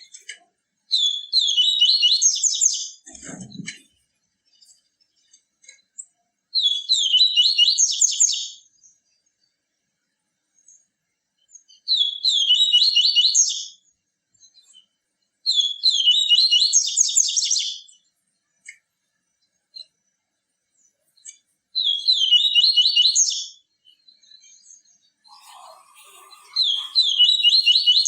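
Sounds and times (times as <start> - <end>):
seedeater bird singing: 0.9 - 3.8, 4.6 - 8.6, 15.5 - 18.0, 20.8 - 28.0.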